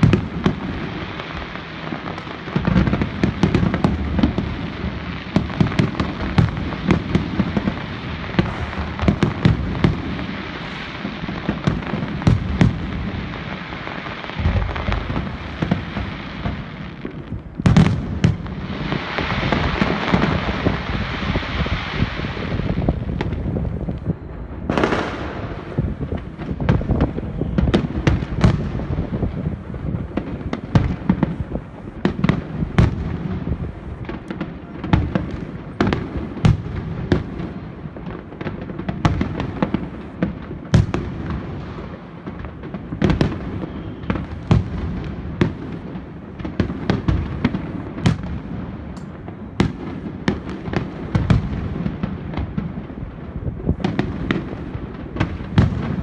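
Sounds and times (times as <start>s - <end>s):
fireworks bangs and cracks: 0.0s - 56.0s
rumble of shell bursts: 8.0s - 12.2s.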